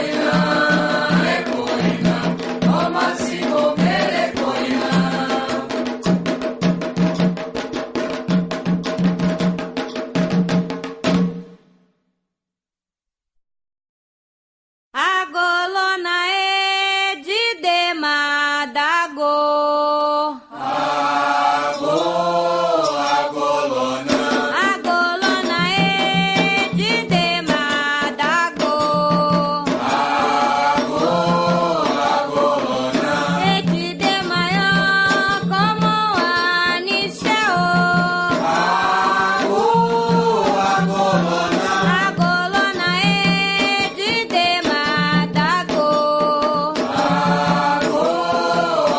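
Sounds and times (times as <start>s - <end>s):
lead voice chanting: 38.4s - 42.0s.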